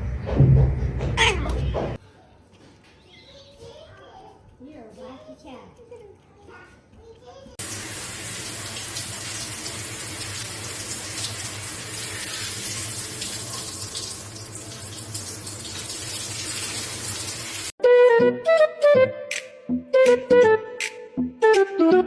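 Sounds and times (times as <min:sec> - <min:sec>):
tap water running into sink: 0:07.6 - 0:17.7.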